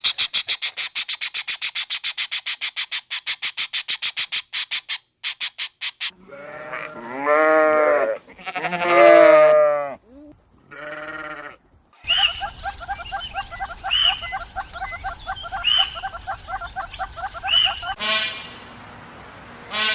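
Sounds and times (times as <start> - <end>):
goat or sheep bleating: 6.2 - 10.1, 10.7 - 11.6.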